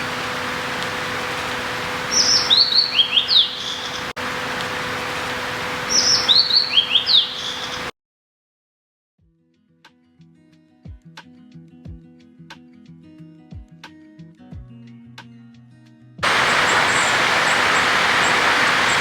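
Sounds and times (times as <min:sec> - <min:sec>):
steady background hiss: 0:00.0 - 0:07.9, 0:16.2 - 0:19.0
songbird whistling: 0:01.8 - 0:07.9, 0:16.2 - 0:19.0.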